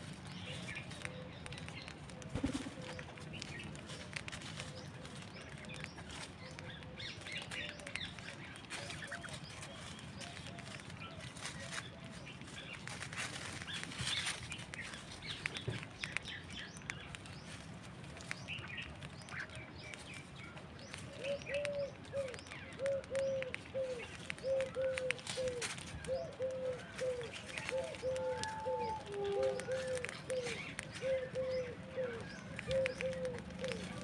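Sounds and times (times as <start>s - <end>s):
birds chirping: 0.0s - 34.0s
bird wing flaps: 2.2s - 3.7s.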